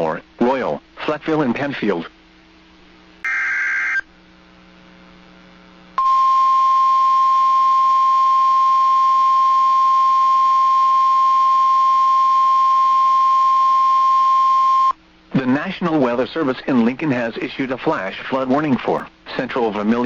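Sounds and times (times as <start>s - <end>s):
steady warning alarm tone: 3.2s - 4.0s.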